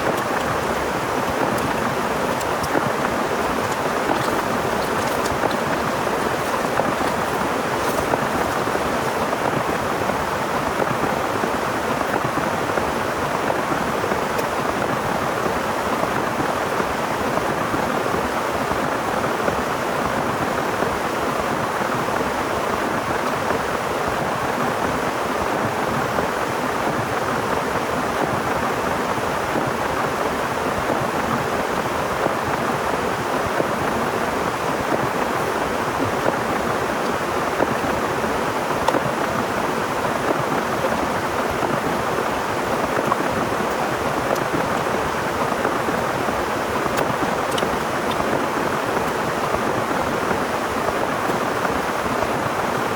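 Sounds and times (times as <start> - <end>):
heavy rain falling: 0.0 - 16.5, 32.1 - 52.9.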